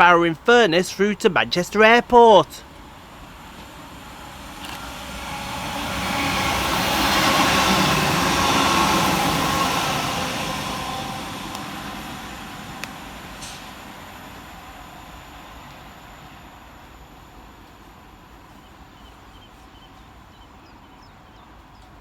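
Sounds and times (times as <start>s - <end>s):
diesel train passing: 2.6s - 19.4s.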